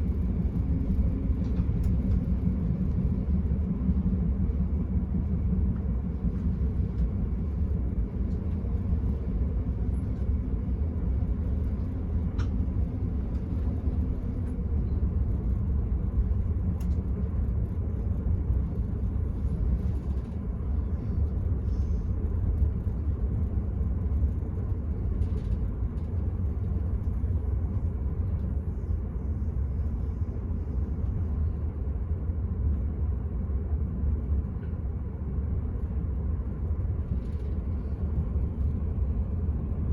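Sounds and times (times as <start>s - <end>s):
train rumbling inside carriage: 0.0s - 39.9s.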